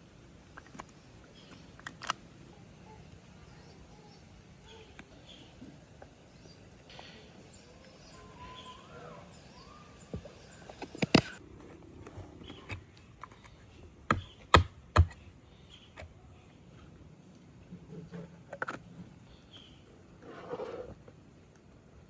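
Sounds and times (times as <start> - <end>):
faint bird calls: 0.6 - 17.0.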